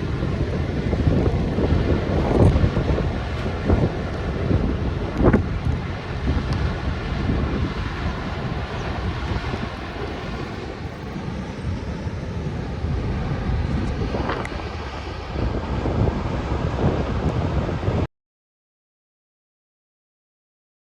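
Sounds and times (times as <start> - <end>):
wind buffeting microphone: 0.0 - 18.1
floodwater rushing: 7.6 - 11.2.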